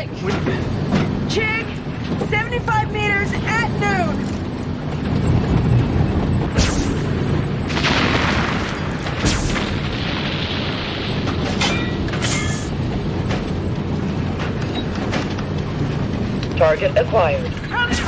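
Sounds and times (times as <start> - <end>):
low vehicle rumble: 0.0 - 18.0
heavy booms with rumble: 5.3 - 12.2.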